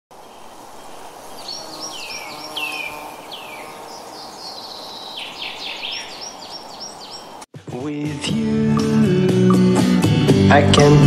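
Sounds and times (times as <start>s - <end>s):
outdoor background hiss: 0.1s - 7.5s
birds calling downward sweeps: 0.2s - 7.5s.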